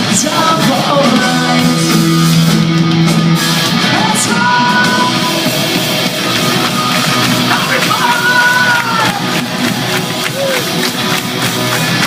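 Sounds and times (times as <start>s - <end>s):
distorted electric guitars: 0.0s - 12.0s
driving drums: 0.0s - 12.0s.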